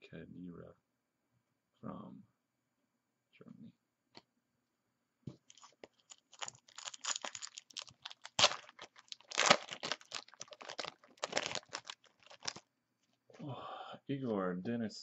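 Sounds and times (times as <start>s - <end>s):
foil wrapper tearing and crinkling: 5.5s - 12.6s.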